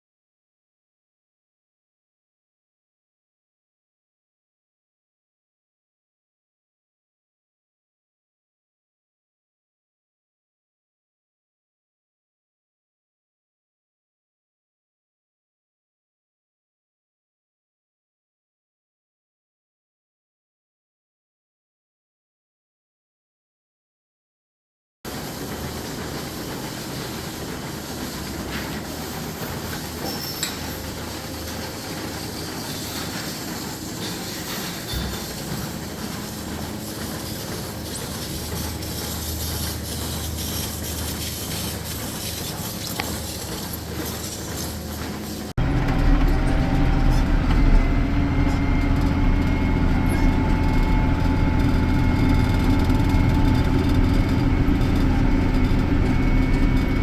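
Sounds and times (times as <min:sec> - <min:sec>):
farm machinery rumble and clatter: 0:25.1 - 0:57.0
engine running steadily: 0:45.6 - 0:57.0.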